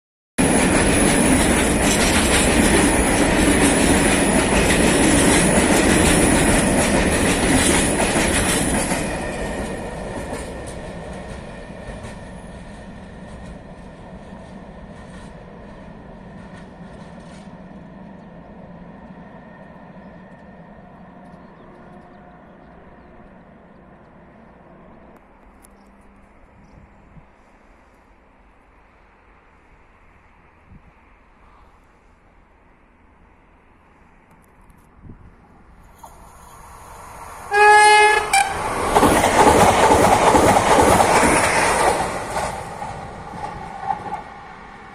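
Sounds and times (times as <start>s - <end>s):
train wheels clattering on rails: 0.4s - 18.2s, 37.5s - 44.5s.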